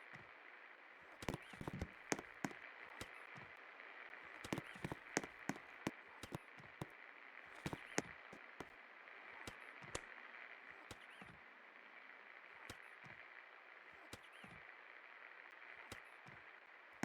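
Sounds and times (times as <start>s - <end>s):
sharp clicks and ticks: 1.2s - 2.6s, 4.4s - 5.6s.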